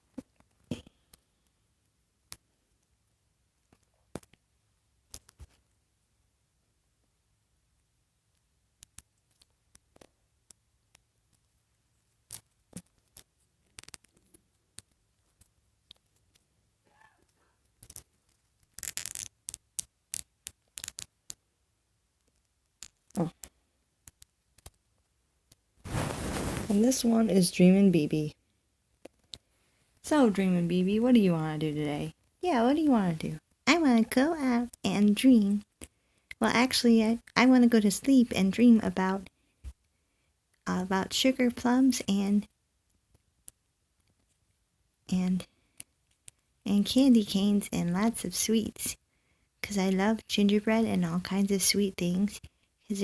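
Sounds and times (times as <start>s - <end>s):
small plastic clicks and taps: 3.7s - 4.4s
plastic toy pieces clicking: 17.8s - 21.4s
soft rustle: 25.8s - 27.8s.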